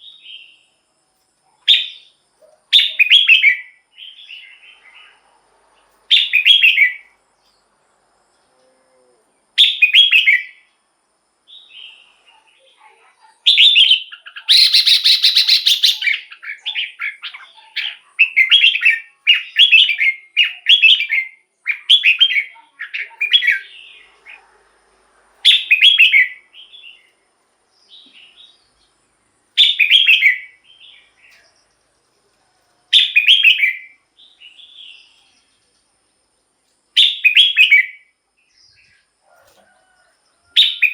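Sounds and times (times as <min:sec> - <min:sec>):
bird whistled song: 0:01.7 - 0:04.9, 0:06.1 - 0:07.2, 0:09.6 - 0:10.6, 0:13.5 - 0:24.1, 0:25.4 - 0:27.1, 0:29.6 - 0:31.5, 0:32.9 - 0:35.2, 0:37.0 - 0:38.1, 0:40.6 - 0:40.9
harsh noisy bird call: 0:13.4 - 0:24.6, 0:25.4 - 0:27.1.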